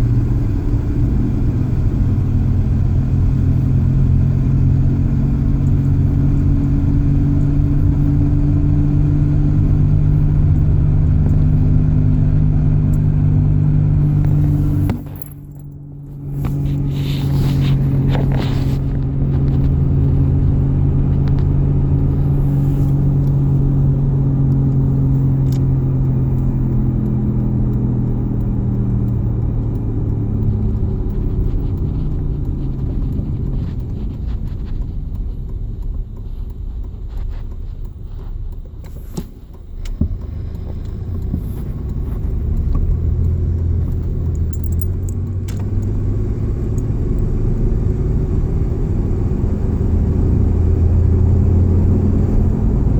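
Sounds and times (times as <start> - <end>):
low droning cabin hum: 0.0 - 52.9
rough rumble: 0.0 - 52.9
light rattles: 14.0 - 46.0.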